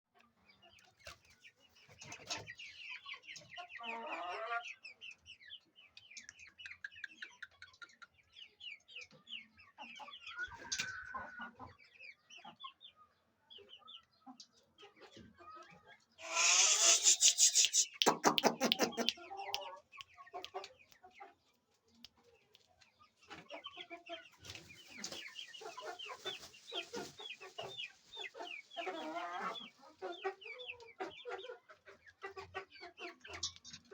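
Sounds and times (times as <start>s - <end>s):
chickens clucking: 0.2s - 33.9s
loud long chicken call: 16.2s - 19.1s.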